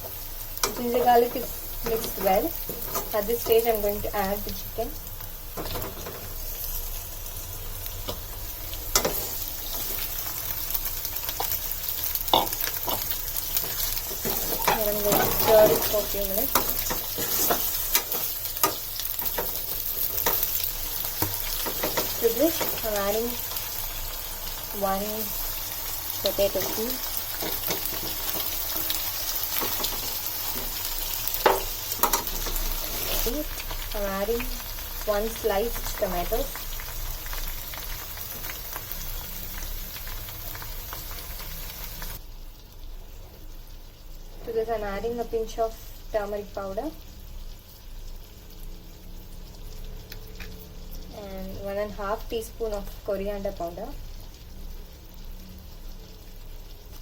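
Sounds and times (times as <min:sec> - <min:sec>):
chicken sizzling in hot oil: 0:00.0 - 0:57.0.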